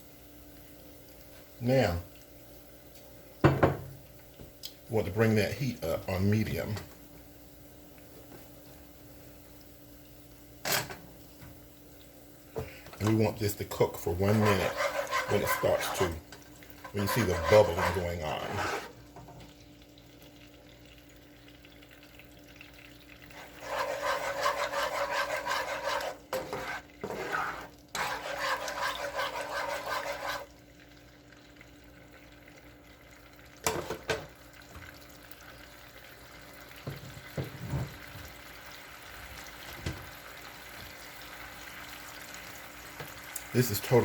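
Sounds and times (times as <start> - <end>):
sauce sizzling in a skillet: 0.0 - 44.0
sauce simmering: 11.2 - 33.7, 34.3 - 44.0.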